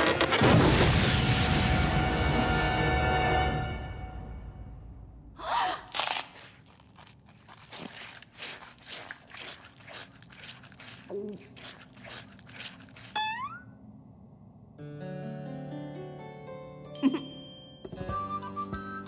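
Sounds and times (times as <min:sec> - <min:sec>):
cartoon apple crunching: 0:05.5 - 0:13.6
rustling noise: 0:05.9 - 0:13.2.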